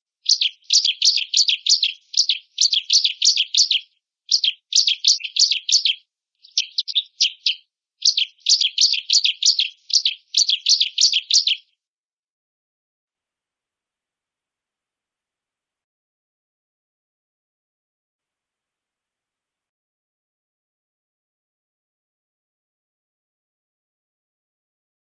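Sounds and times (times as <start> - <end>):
prinia singing high notes: 0.3 - 11.6.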